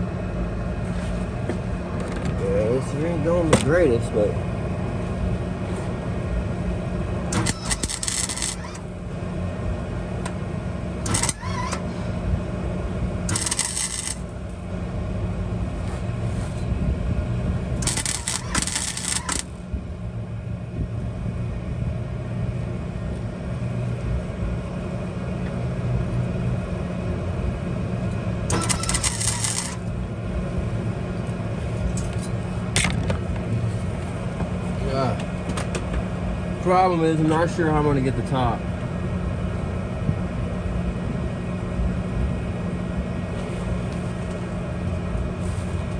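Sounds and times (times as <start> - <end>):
steady low hum: 0.0 - 45.9
metallic clinks and scraping: 17.8 - 19.5.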